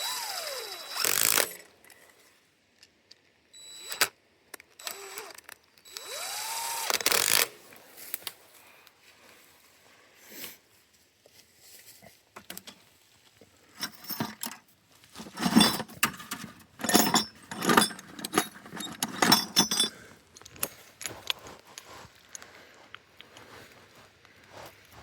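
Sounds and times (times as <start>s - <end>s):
metal parts jangling: 13.8s - 14.6s, 15.2s - 21.3s.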